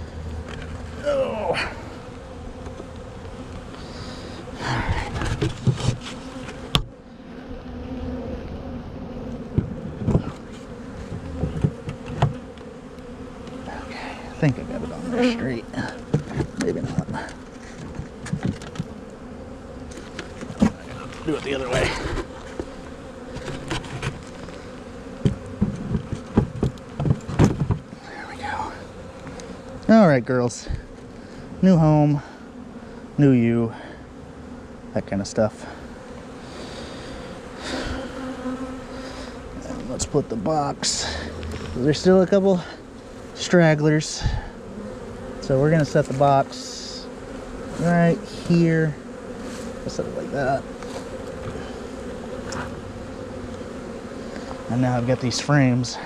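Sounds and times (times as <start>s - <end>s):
honeybees buzzing: 0.0s - 56.0s
knocks and scrapes of hive part: 4.8s - 7.0s, 9.4s - 13.8s, 14.5s - 19.2s, 19.9s - 28.0s, 41.4s - 41.9s, 45.7s - 46.3s, 47.3s - 56.0s
knocks and clicks of hive parts: 11.1s - 12.7s, 25.2s - 27.9s.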